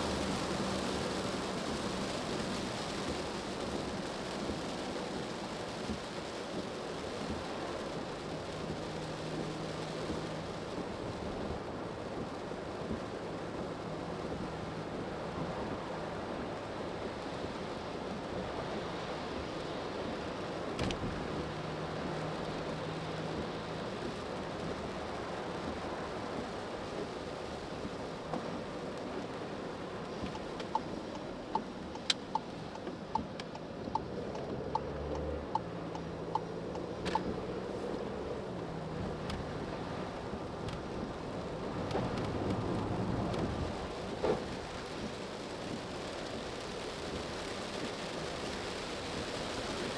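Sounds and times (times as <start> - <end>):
faint low engine hum: 0.0 - 49.9
rain on car: 0.0 - 49.9
tyres on wet road: 0.0 - 49.9
turn signal ticking: 27.4 - 43.4.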